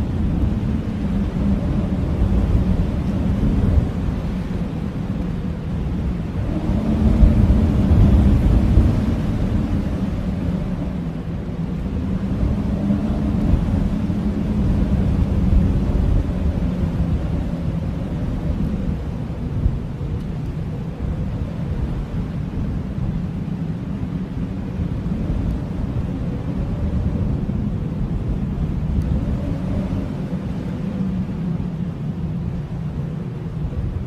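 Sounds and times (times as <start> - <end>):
blizzard wind howling: 0.0 - 34.0.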